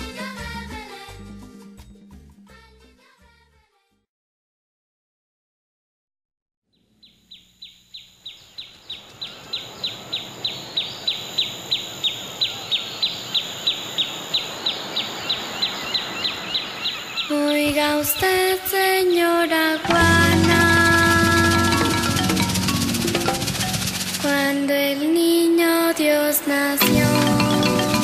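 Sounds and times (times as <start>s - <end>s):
music: 0.0s - 4.1s, 18.3s - 28.0s
bird chirping: 6.7s - 24.5s
steady high hiss: 7.2s - 28.0s.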